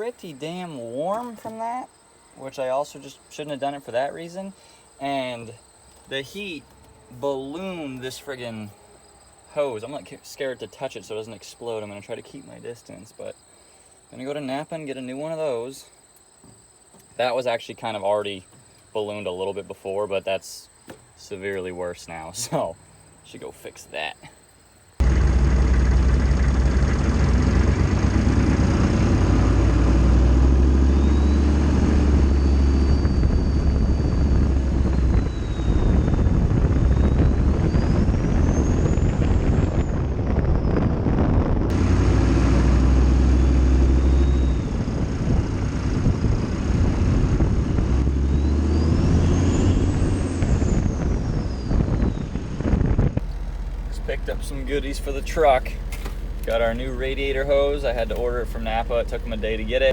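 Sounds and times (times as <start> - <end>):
diesel pickup engine running loud: 25.0 - 52.2, 52.8 - 59.9
turbo whistle: 30.9 - 40.2.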